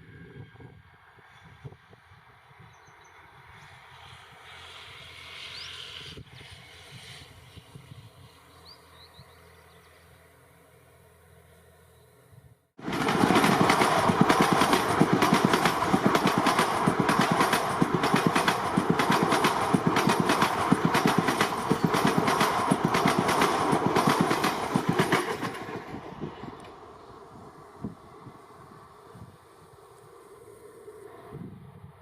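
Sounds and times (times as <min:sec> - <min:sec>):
train wheels clattering over rails: 0:12.8 - 0:26.8.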